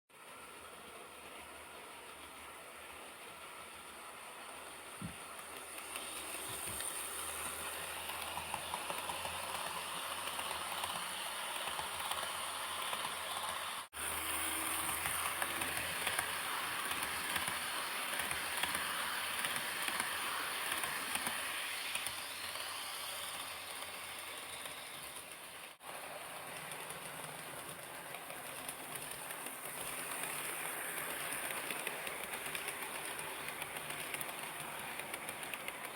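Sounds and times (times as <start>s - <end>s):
model train wheels rumbling: 0.2s - 35.9s.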